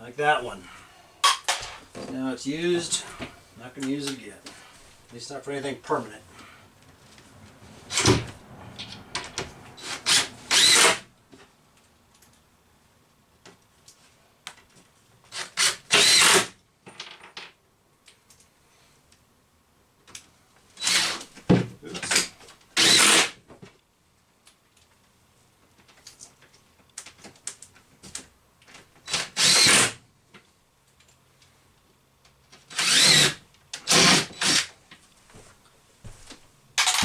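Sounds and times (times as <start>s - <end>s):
power drill driving screws: 7.9s - 8.3s, 9.8s - 11.1s, 15.3s - 16.5s, 20.8s - 21.3s, 22.1s - 23.3s, 29.1s - 30.0s, 32.7s - 34.7s, 36.8s - 37.0s.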